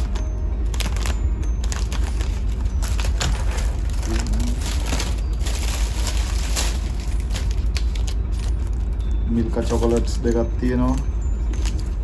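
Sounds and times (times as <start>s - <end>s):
packaging crinkling and rustling: 0.0s - 9.0s, 10.9s - 12.0s
low machinery rumble: 0.0s - 12.0s.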